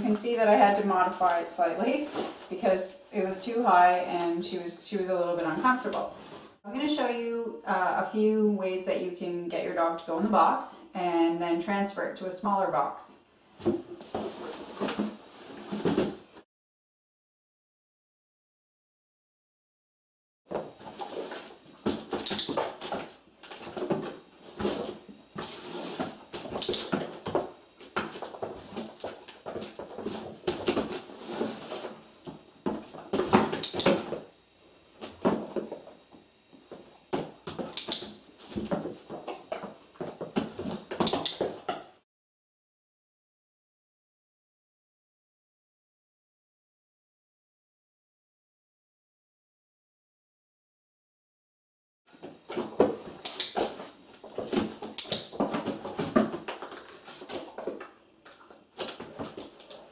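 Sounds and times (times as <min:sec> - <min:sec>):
paws scuffing on cardboard: 0:20.5 - 0:34.2, 0:38.4 - 0:41.8.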